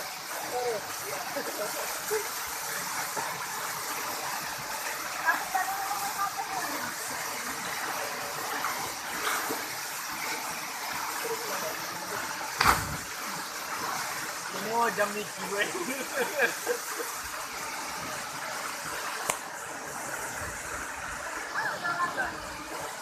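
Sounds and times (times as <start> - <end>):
sharp thump: 12.6 - 13.1.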